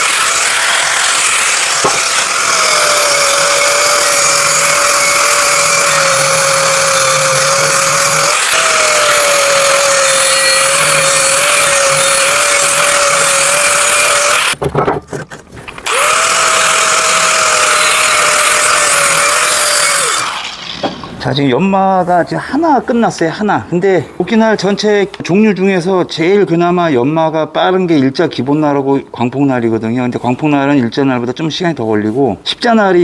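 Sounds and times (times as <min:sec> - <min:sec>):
power grinder grinding steel: 0:00.0 - 0:14.6, 0:15.8 - 0:20.7.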